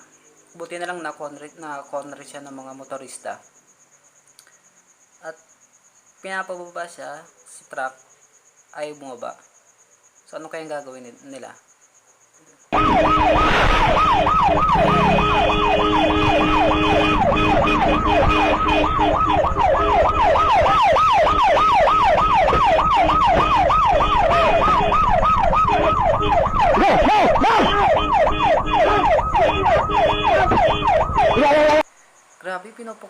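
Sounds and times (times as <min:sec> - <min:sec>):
police siren yelping: 0:12.7 - 0:31.8.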